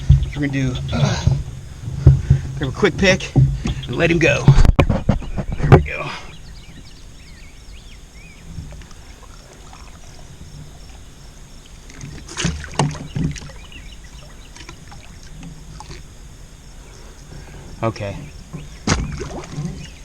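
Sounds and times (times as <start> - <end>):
knocks against kayak: 0.0 - 6.9, 11.9 - 13.9, 17.3 - 20.0
faint bird chirps: 0.0 - 20.0.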